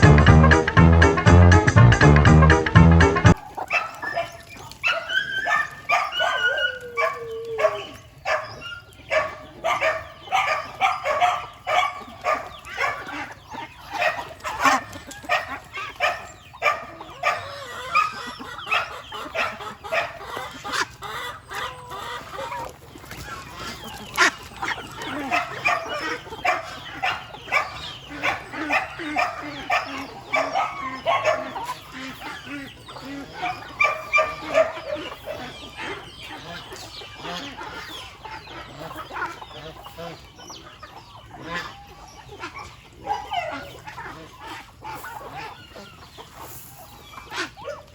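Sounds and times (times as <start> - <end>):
long falling poultry call: 0.0 - 47.9
poultry clucking: 0.0 - 47.9.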